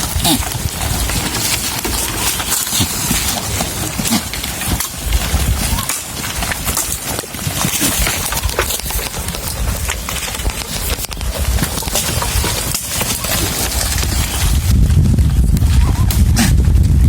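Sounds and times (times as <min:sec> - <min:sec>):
clicks and rustling: 0:00.0 - 0:16.5
low rumble on microphone: 0:04.6 - 0:17.0.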